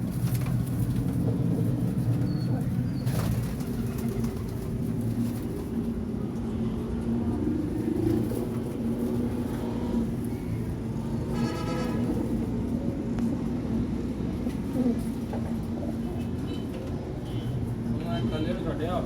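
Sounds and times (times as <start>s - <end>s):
pigeons cooing: 1.2s - 5.4s.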